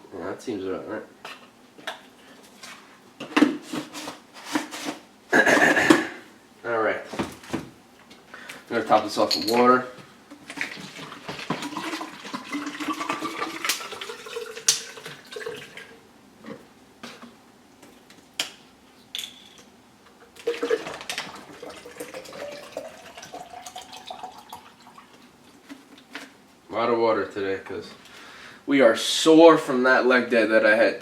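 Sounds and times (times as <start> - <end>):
water pouring into container: 10.5 - 16.0, 20.4 - 25.1.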